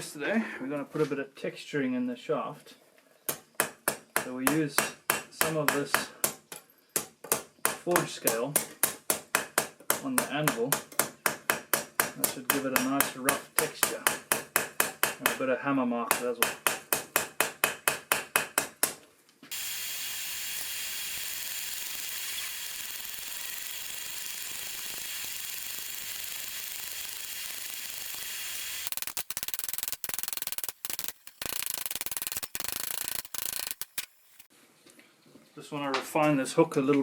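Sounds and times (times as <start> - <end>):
steady high hiss: 19.5 - 29.2.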